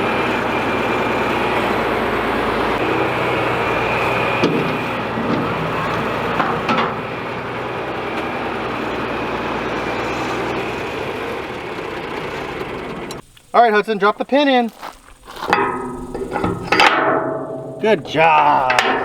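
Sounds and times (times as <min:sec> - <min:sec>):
tractor engine running: 0:00.0 - 0:19.0
sharp knocks: 0:15.5 - 0:19.0.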